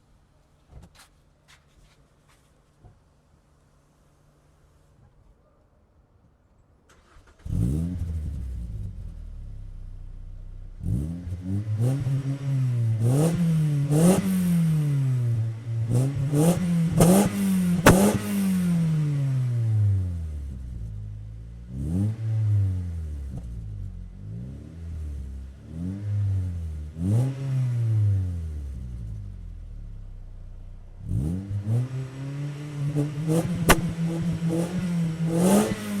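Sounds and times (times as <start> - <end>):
car engine revving in blips: 6.9 - 36.0
car engine starting: 6.9 - 36.0
car engine idling: 8.1 - 21.7.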